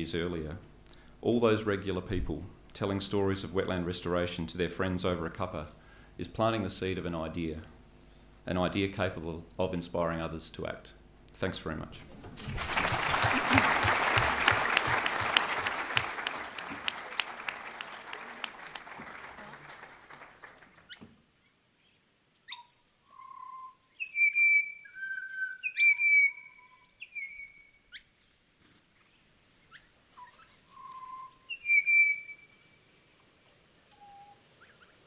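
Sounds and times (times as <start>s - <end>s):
audience applause: 12.4s - 20.9s
bird singing whistled notes: 21.8s - 28.1s, 29.7s - 32.9s, 33.9s - 34.9s.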